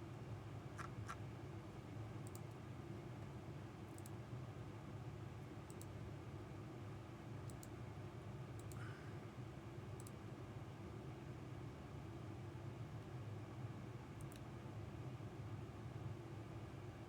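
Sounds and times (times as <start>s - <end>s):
faint sharp clicks: 14.2s - 14.5s.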